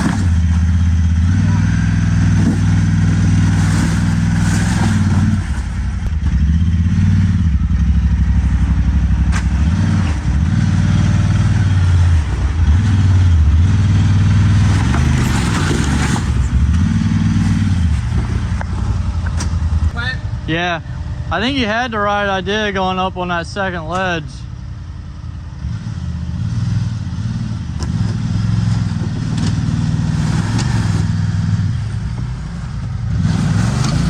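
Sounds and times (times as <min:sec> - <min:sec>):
off-road vehicle engine revving: 0:00.0 - 0:23.0, 0:23.6 - 0:34.0.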